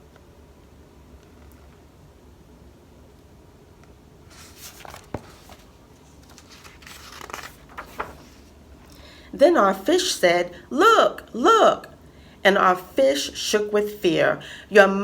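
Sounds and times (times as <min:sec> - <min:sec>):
paper pages rustling: 0:04.3 - 0:09.0.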